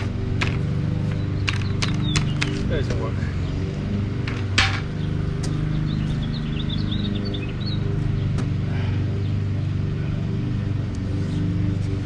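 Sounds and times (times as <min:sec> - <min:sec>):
low machine hum: 0:00.0 - 0:12.0
small bird chirping: 0:00.8 - 0:03.6, 0:04.9 - 0:08.4.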